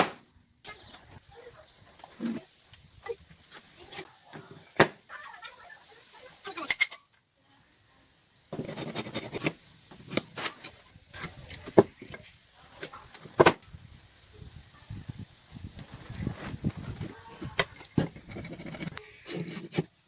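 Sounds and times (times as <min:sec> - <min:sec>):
rubbing and scraping on wood: 0:08.6 - 0:13.6, 0:16.0 - 0:20.0.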